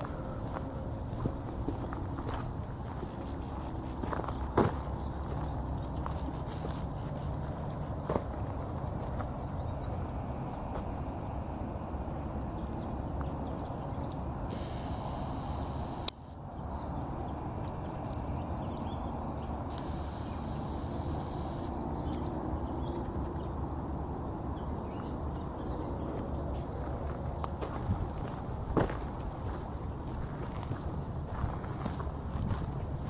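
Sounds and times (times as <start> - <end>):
wind rumble on microphone: 0.0 - 33.0
high insect hiss: 14.2 - 32.7.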